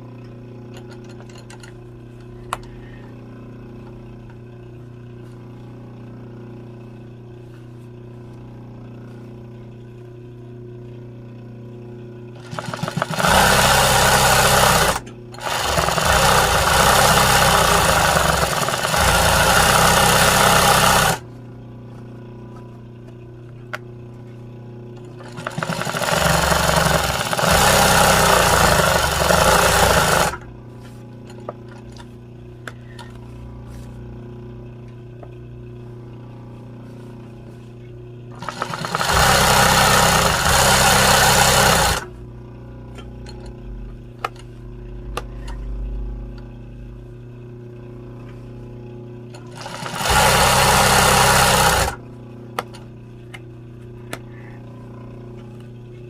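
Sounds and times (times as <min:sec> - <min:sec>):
low hum: 0:00.0 - 0:12.4, 0:30.2 - 0:38.4, 0:41.9 - 0:49.6
embroidery machine stitching: 0:12.4 - 0:21.2, 0:25.1 - 0:30.5, 0:38.3 - 0:42.1, 0:49.3 - 0:52.0.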